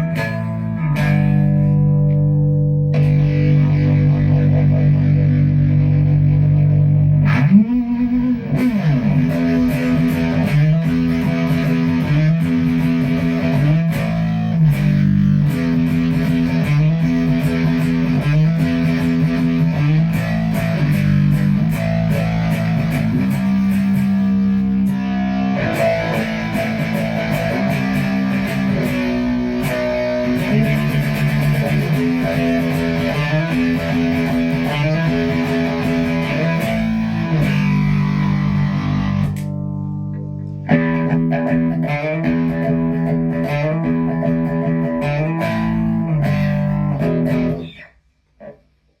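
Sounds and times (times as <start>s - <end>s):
fuzz electric guitar riff: 0.0s - 48.6s.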